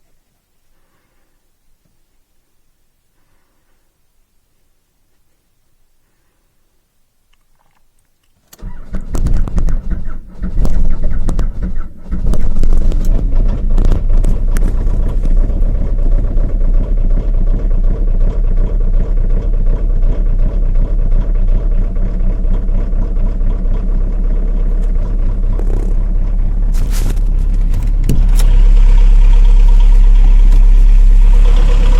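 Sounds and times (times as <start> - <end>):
starter cranking: 8.5 - 19.0, 21.2 - 31.9
diesel engine idling: 8.6 - 31.9.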